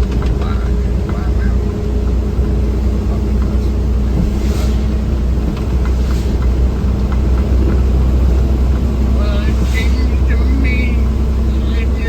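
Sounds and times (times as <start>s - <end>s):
vehicle driving on wet road: 0.0s - 12.0s
brief swishes: 4.3s - 5.0s.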